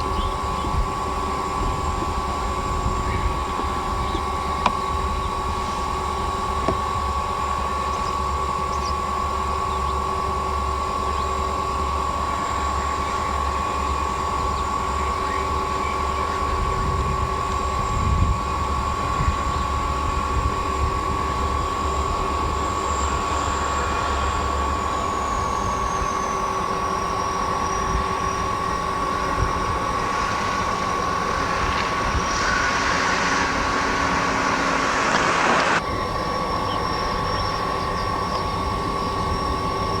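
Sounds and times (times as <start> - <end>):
constant high thin tone: 0.0 - 35.9
train wheels rumbling on rails: 19.3 - 36.2.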